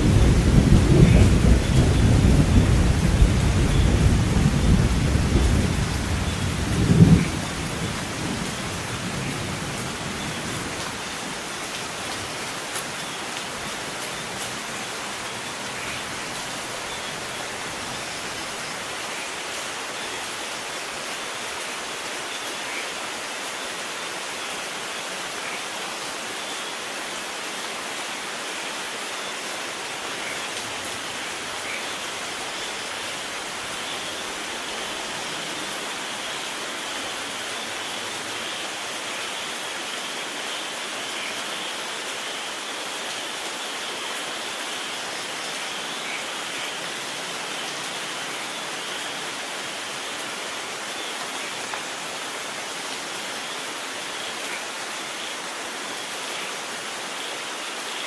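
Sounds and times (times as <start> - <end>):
thunder rumble: 0.0 - 11.2
steady rain falling: 0.0 - 58.0.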